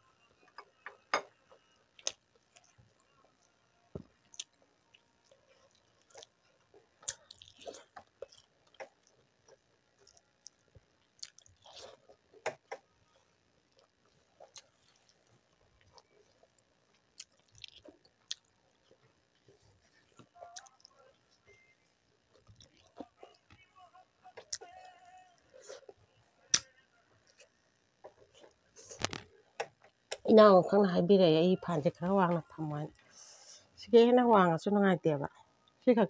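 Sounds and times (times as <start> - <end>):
person chewing food: 2.0 - 3.1, 3.9 - 21.7, 22.3 - 23.7, 24.3 - 30.3.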